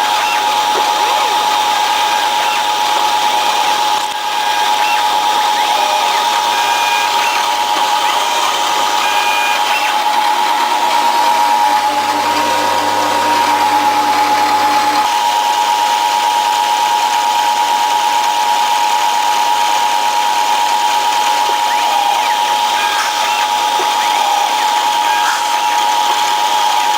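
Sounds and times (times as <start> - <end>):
stepper motors driving: 0.0 - 15.4, 20.3 - 26.9
spindle high whine: 0.0 - 16.2, 19.6 - 26.9
low feed move hum: 5.3 - 15.3.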